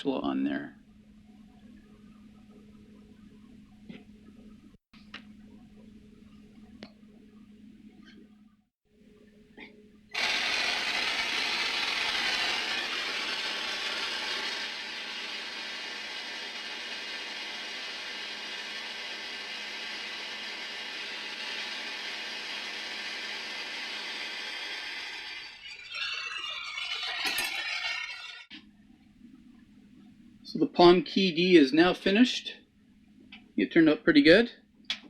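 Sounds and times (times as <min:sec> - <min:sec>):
metalworking tool rushing noise: 0:25.4 - 0:28.5.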